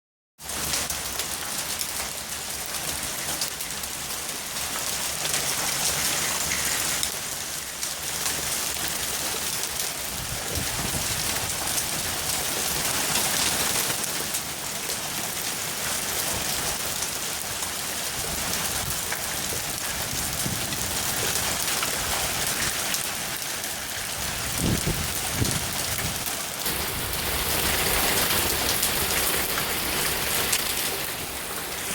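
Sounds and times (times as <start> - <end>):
hailstones striking hard surfaces: 24.6 - 31.9.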